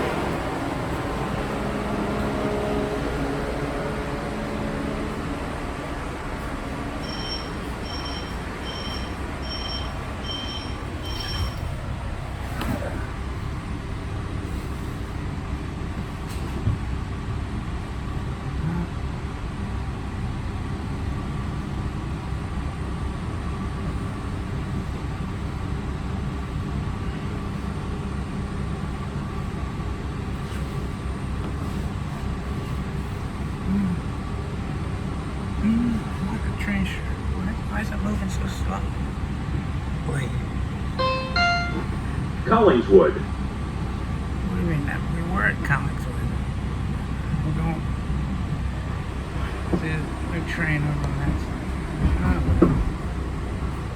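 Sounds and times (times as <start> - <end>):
train rumbling: 0.0 - 53.9
two-tone electronic chime: 41.0 - 42.2.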